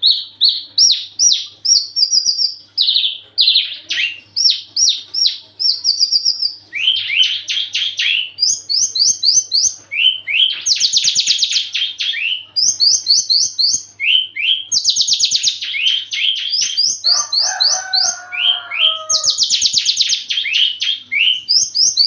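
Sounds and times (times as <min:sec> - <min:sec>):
bird singing trilling song: 0:00.0 - 0:22.0.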